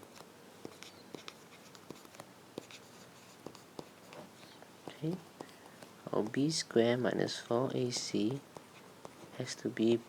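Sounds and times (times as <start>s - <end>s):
pen scratching on paper: 0.1s - 4.4s
pen tapping: 0.1s - 6.4s.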